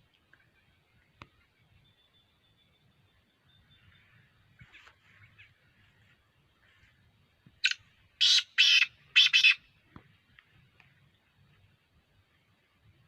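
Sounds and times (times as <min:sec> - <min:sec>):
bird harsh grating calls: 0:07.6 - 0:09.6.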